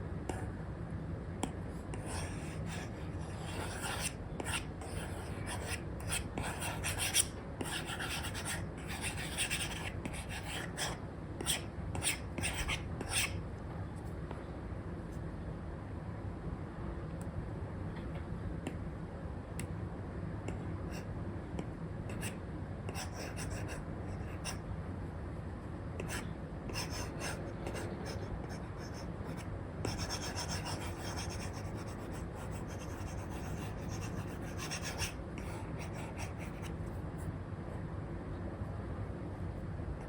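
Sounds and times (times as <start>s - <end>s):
low background hum: 0.0s - 40.0s
stylus scratching on screen: 2.0s - 13.4s, 26.0s - 36.7s.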